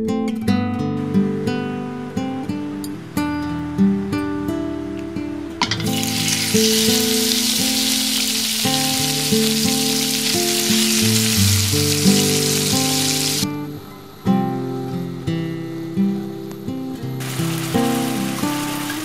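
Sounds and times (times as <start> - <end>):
soft acoustic guitar music: 0.0 - 19.0
meat sizzling in a wok: 5.6 - 13.5, 17.2 - 19.0.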